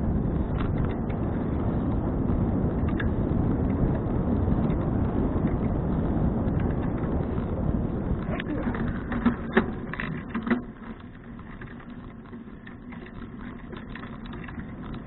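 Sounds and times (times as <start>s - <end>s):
wind and road rumble: 0.0s - 15.0s
sharp clicks and knocks: 8.2s - 15.0s.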